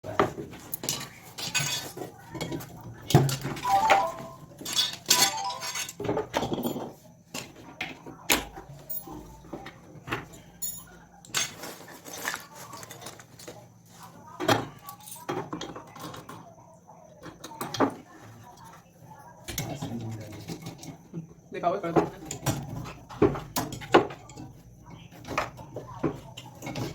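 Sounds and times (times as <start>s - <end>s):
metallic clinks and knocks: 3.6s - 6.8s.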